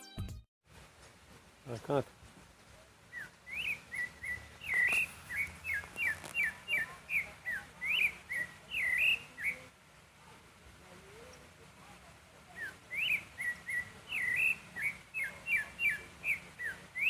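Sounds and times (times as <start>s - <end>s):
songbird whistling notes: 3.1s - 9.7s, 12.5s - 17.0s.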